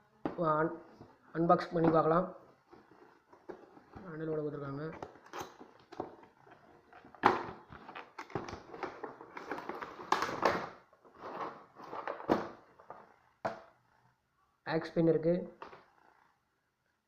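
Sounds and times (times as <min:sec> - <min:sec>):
cardboard packaging rustling: 0:02.2 - 0:13.1.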